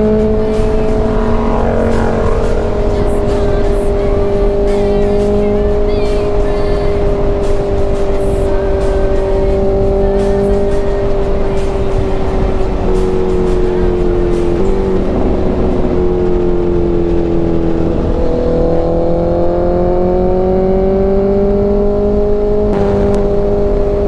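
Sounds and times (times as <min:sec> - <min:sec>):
motorcycle engine running: 0:00.0 - 0:05.8.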